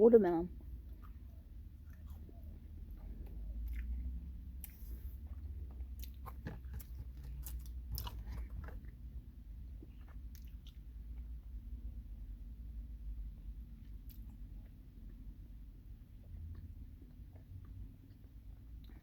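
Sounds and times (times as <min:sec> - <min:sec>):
low steady hum: 0:00.0 - 0:19.0
person chewing candy: 0:00.6 - 0:11.4, 0:16.0 - 0:19.0.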